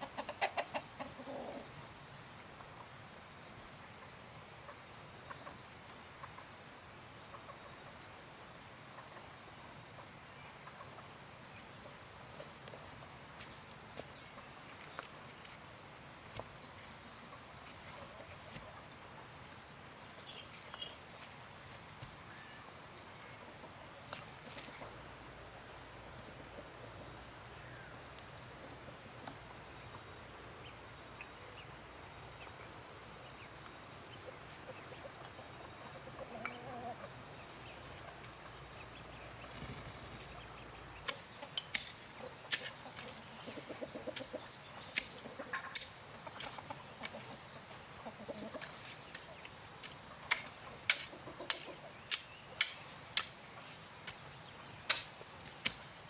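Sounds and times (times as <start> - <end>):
chickens clucking: 0.0 - 1.8, 4.0 - 6.7, 7.3 - 7.9, 10.0 - 11.2, 33.6 - 55.8
outdoor background noise: 0.0 - 56.0.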